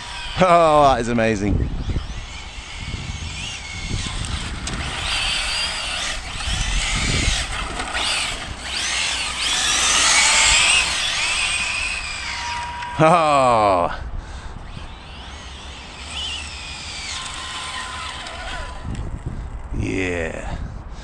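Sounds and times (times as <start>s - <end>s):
electric motor whining: 0.0s - 13.8s, 14.5s - 19.7s
tyre noise on tarmac: 2.6s - 13.2s.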